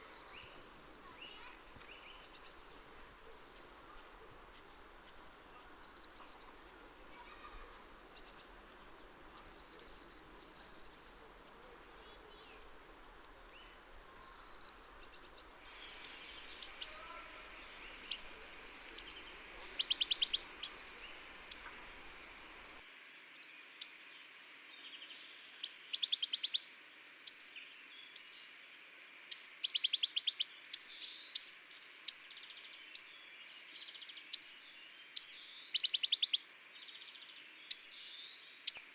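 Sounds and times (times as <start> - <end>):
faint steady hiss: 0.0 - 22.8
high bird chirps and trills: 0.0 - 22.8
songbirds singing and calling: 0.0 - 22.8.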